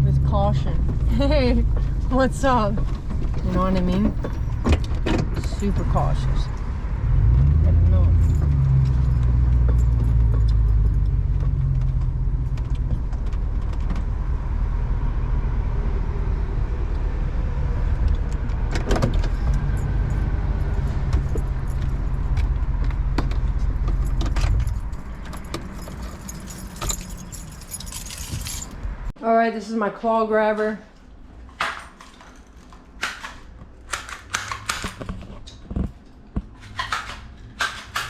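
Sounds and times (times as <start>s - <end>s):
car engine and road rumble: 0.0s - 29.2s
light clicks and rattles: 21.1s - 28.8s.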